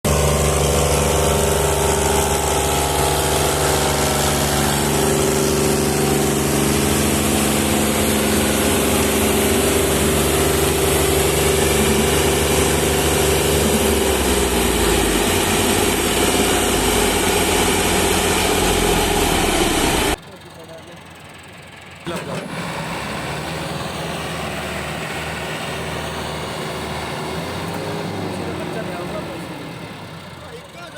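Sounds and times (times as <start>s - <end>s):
tractor diesel engine running: 0.0s - 30.9s.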